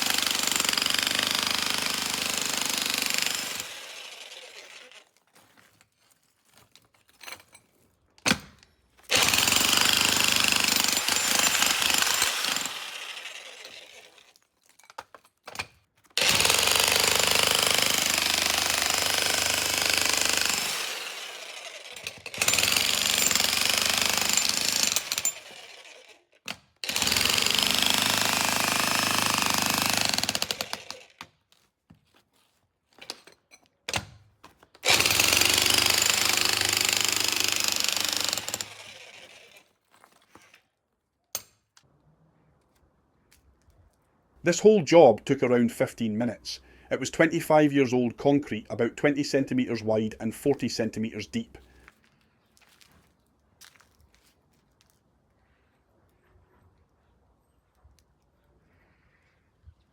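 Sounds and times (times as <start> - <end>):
demolition hammer on concrete: 0.0 - 4.2, 6.8 - 21.4, 22.0 - 25.6, 26.4 - 31.4, 33.0 - 39.0.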